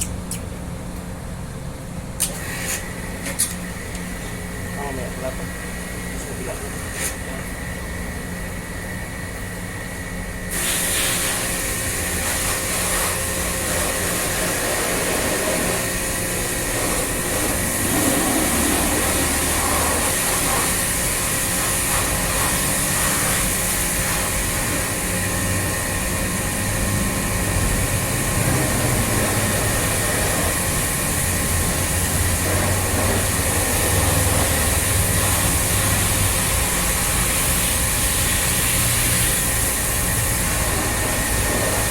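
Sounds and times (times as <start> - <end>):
loud even hiss: 10.5 - 25.0
machine humming: 11.6 - 41.9.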